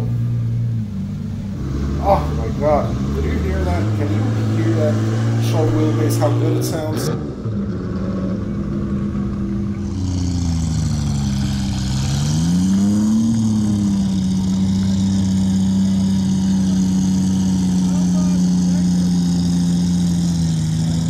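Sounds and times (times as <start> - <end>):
car engine running: 0.0 - 21.0.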